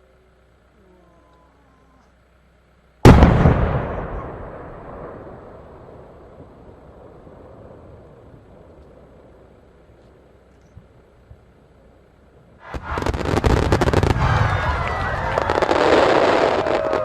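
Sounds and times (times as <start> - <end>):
firework shell booming: 3.0 - 8.8, 12.6 - 17.0
echoing rumble: 3.0 - 9.9, 12.6 - 17.0.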